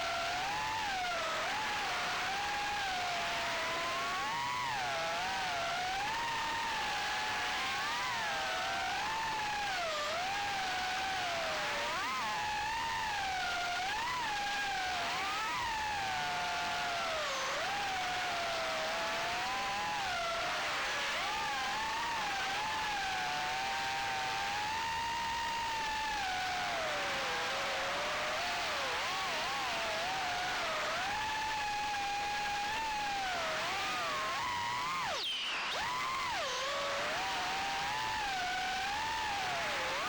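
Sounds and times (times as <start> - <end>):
quadcopter motors whining: 21.3 - 40.0.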